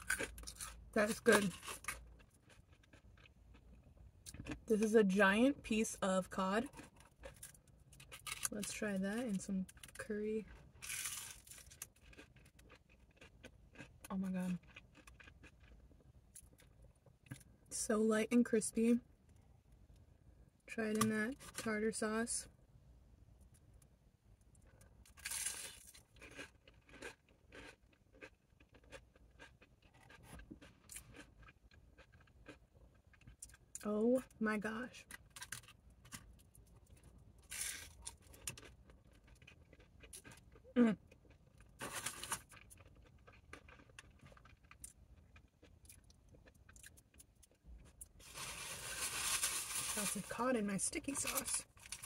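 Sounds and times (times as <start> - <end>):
chewing with soft crunches: 0.0 - 4.7, 6.6 - 8.6, 9.4 - 17.6, 23.4 - 33.8, 35.0 - 48.4.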